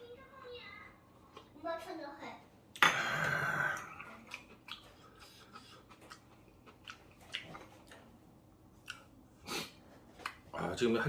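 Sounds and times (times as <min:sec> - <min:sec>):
quiet chewing: 0:01.0 - 0:01.9, 0:03.8 - 0:10.6.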